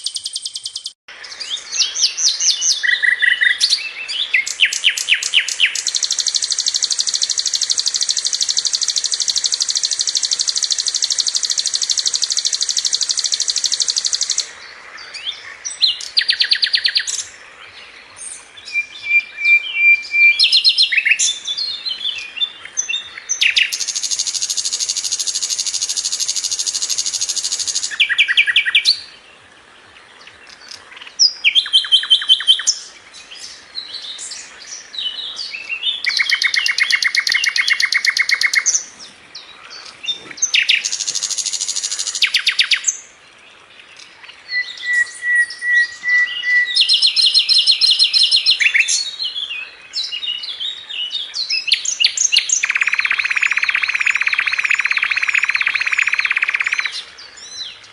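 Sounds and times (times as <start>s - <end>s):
bird rattling song: 2.1s - 14.5s, 23.2s - 29.0s, 36.0s - 38.9s, 39.9s - 43.0s, 46.7s - 49.0s, 51.8s - 57.0s.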